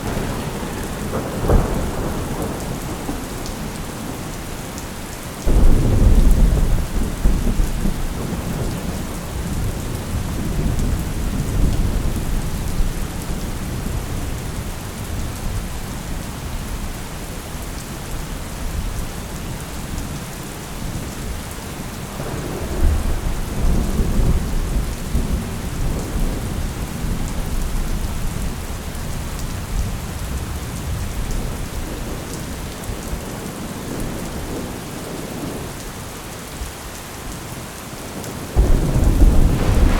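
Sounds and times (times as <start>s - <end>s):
thunder rumble: 0.0s - 4.4s, 5.5s - 14.3s, 22.1s - 27.8s, 38.6s - 39.9s
steady rain falling: 0.0s - 39.9s.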